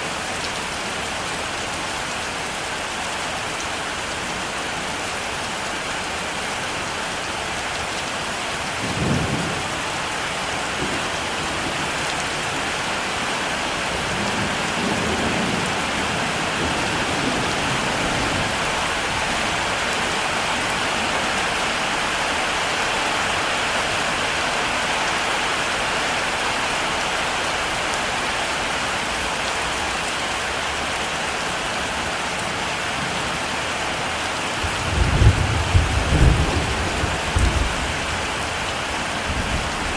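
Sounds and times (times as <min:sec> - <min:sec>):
heavy rain falling: 0:00.0 - 0:39.9
thunder rumbling: 0:34.6 - 0:38.4.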